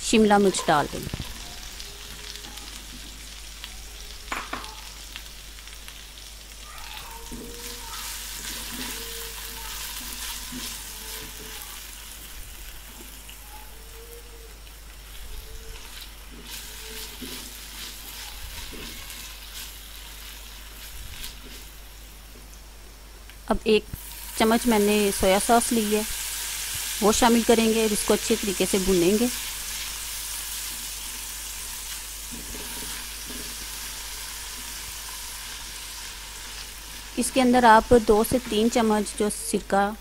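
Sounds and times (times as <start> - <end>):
vegetables sizzling in oil: 0.0 - 40.0
spatula scraping a pan: 7.2 - 11.8, 15.1 - 21.7, 31.7 - 37.0.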